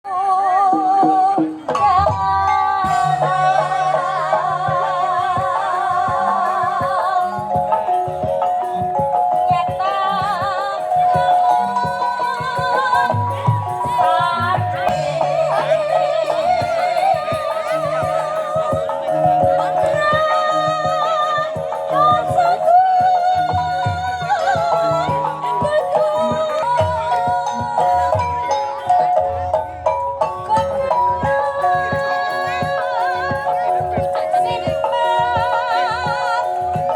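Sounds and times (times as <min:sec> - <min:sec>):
person singing: 0:00.1 - 0:36.9
gamelan melodic percussion: 0:00.4 - 0:36.9
drum strokes: 0:00.8 - 0:36.9.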